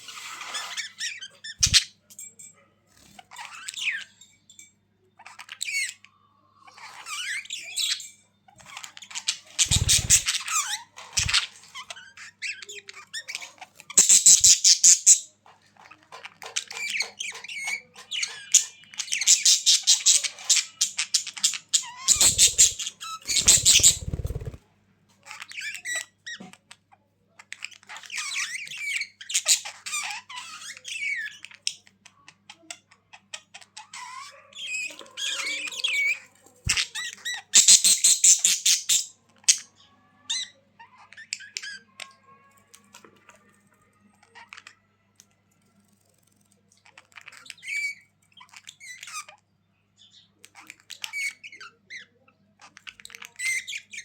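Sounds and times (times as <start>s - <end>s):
budgerigars chattering and warbling: 0.1s - 1.9s, 8.6s - 24.6s
harsh bird squawks: 9.4s - 10.6s, 22.0s - 24.6s.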